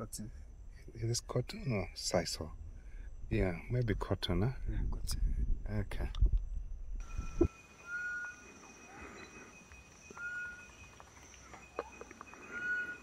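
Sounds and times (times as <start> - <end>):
high insect drone: 0.0 - 13.0
bird whistling: 7.0 - 9.4, 10.0 - 13.0.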